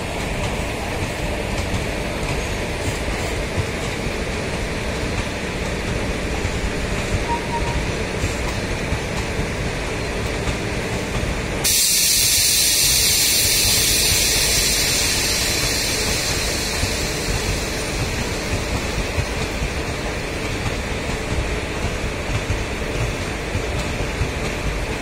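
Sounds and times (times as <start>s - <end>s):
train wheels rumbling on rails: 0.0s - 25.0s
loud hiss: 11.6s - 20.3s.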